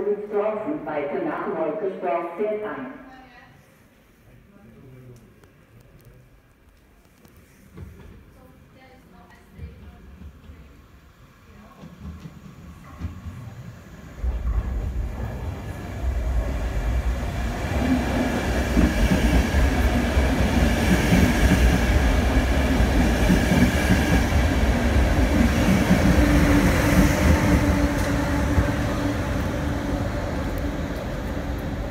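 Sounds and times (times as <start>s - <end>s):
steady train whine: 9.8s - 31.9s
train wheels rumbling on rails: 11.6s - 31.9s.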